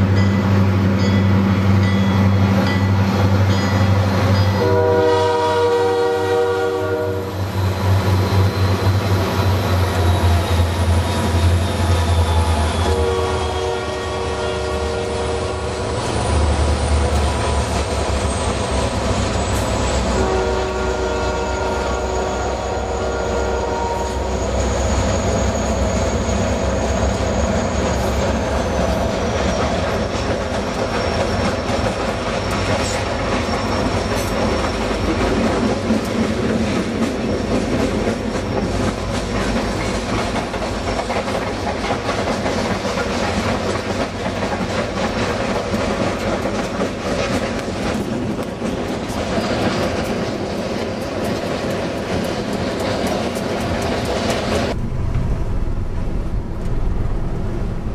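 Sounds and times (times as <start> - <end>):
locomotive horn: 4.5 - 7.4, 9.9 - 16.1, 19.6 - 24.8
high wheel squeal: 7.2 - 13.7, 15.6 - 35.3
freight cars rumbling: 7.2 - 57.9
wheels clacking over rail joints: 26.8 - 54.8.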